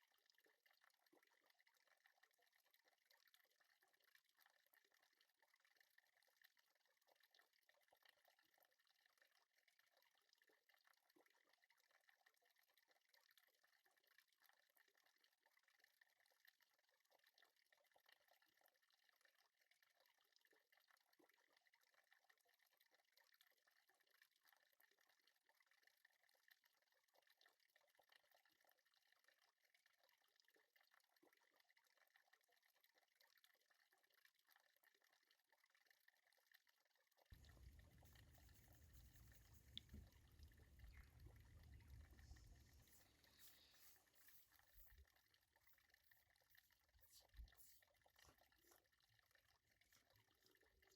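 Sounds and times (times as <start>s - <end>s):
faint crackling hiss: 37.3s - 45.7s.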